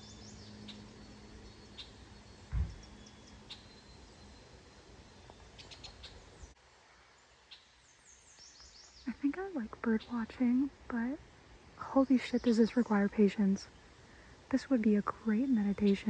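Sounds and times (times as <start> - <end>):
birds chirping: 0.0 - 16.0
dull low thump: 2.5 - 2.9.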